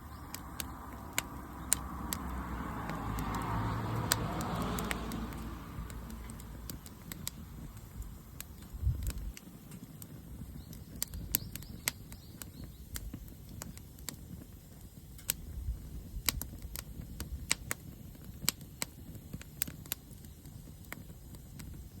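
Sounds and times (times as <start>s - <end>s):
low steady rumble: 0.0s - 10.6s
wood fire crackling: 0.0s - 22.0s.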